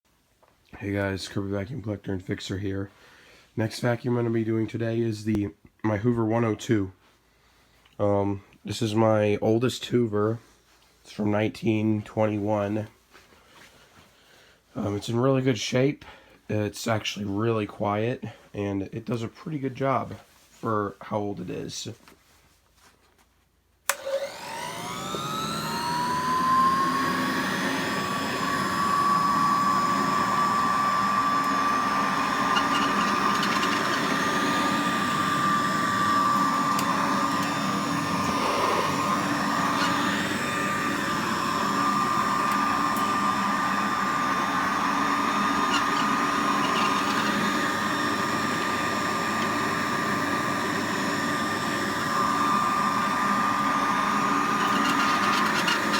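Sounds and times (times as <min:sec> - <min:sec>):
vacuum cleaner switch click: 0:23.9 - 0:50.0
vacuum cleaner motor whine: 0:23.9 - 0:55.9.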